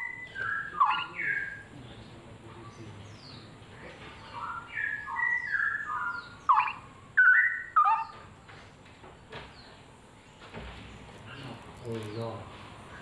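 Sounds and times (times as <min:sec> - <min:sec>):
bird singing whistled notes: 0:00.0 - 0:01.7, 0:04.2 - 0:08.2.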